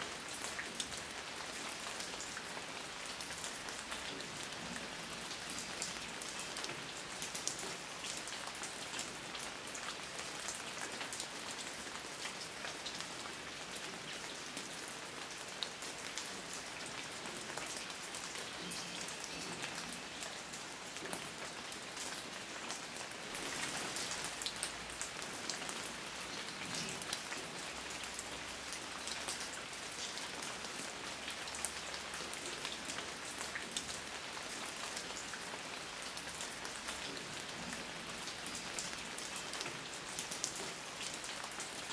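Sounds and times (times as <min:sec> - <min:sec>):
rain on a hard surface: 0:00.0 - 0:41.9.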